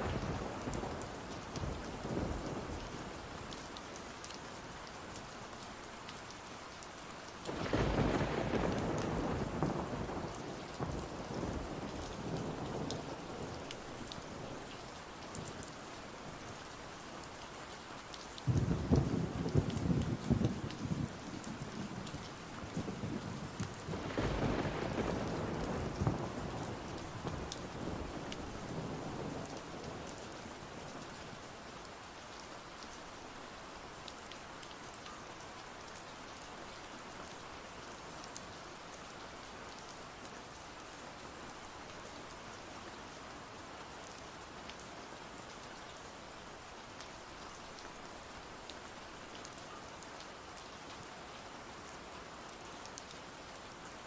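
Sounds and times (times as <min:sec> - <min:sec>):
steady rain hiss: 0:00.0 - 0:54.0
thunder rumbling: 0:07.5 - 0:10.0, 0:22.7 - 0:29.5.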